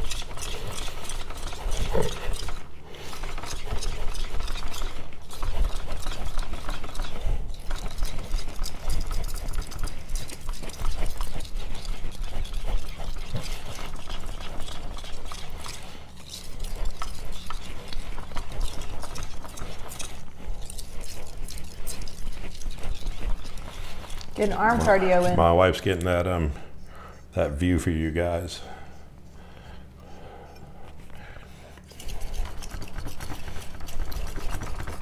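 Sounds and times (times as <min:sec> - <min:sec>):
knife scraping on whetstone: 0:00.0 - 0:25.4.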